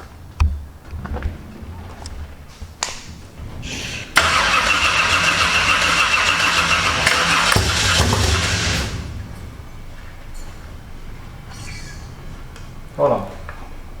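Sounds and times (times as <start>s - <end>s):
race car engine starting: 3.4s - 13.7s.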